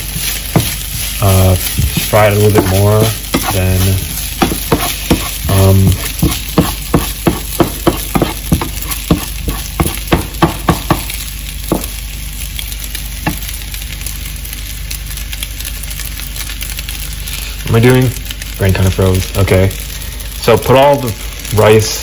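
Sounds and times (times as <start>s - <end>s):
spoon scraping against pan: 0.0s - 10.1s
rice sizzling in a pan: 0.0s - 22.0s.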